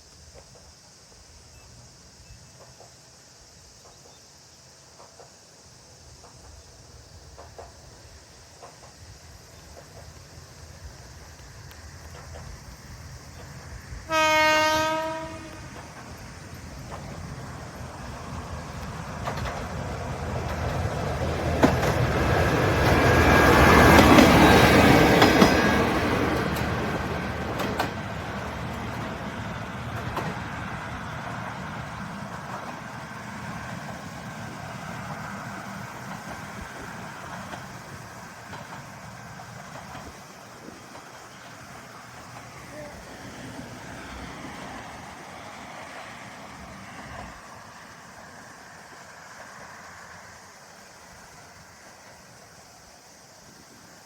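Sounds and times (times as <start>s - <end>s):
railcar passing: 0.0s - 54.0s
wheels clacking over rail joints: 2.4s - 52.7s
train horn blast: 14.1s - 15.8s.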